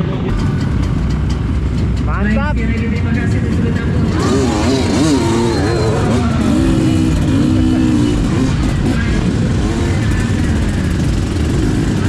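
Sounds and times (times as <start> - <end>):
dirt bike engines revving: 0.0 - 12.0
voices: 0.0 - 12.0.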